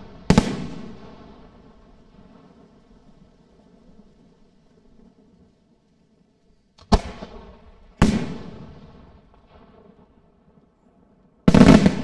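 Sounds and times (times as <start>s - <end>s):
firework bangs with echoing rumble: 0.0s - 4.0s, 6.8s - 10.6s, 11.4s - 12.0s.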